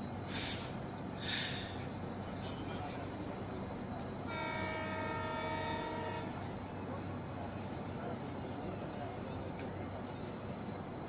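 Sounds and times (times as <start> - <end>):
short hissing bursts: 0.3 - 1.8
locomotive air horn chord: 4.3 - 6.3.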